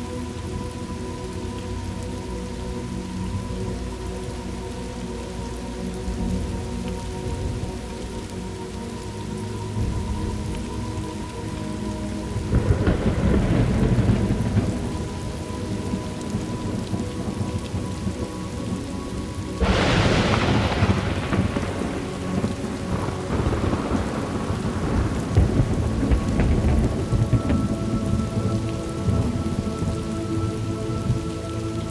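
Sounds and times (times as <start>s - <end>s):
steady rain: 0.0s - 31.9s
rolling thunder: 12.3s - 18.2s, 19.6s - 31.3s
sharp thunderclap: 19.6s - 28.4s.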